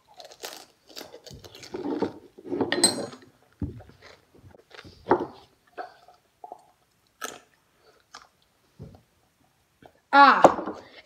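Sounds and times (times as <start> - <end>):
chewing food: 3.5 - 8.6.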